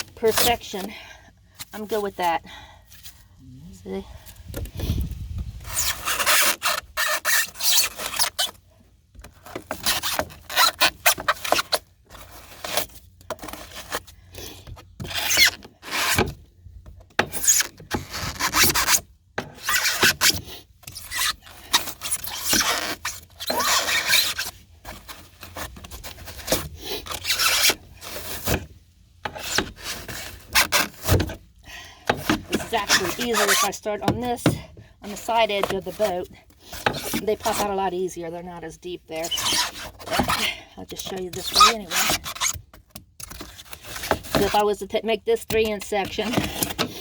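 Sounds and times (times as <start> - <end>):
blade rasping through foam: 5.6 - 8.5.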